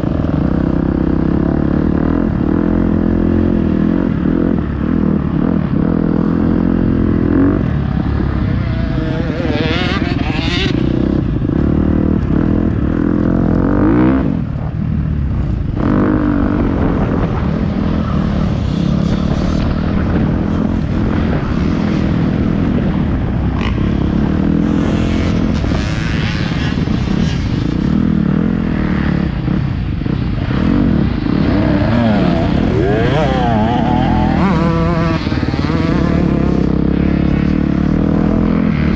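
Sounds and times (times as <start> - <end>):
motocross bike engine revving: 0.5 - 14.4, 30.2 - 38.9.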